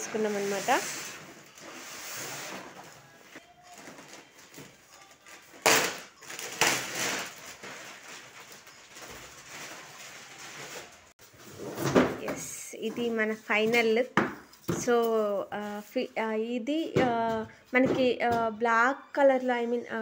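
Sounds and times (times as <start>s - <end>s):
packaging rustling: 3.6s - 11.1s.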